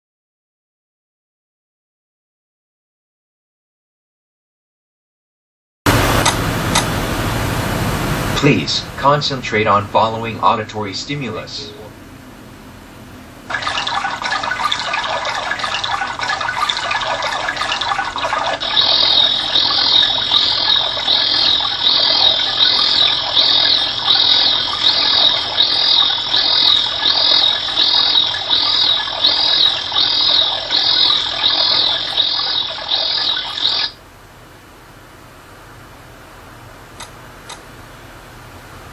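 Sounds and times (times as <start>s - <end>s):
high-pitched repeating call: 13.5s - 34.0s
rush of running water: 13.5s - 34.0s.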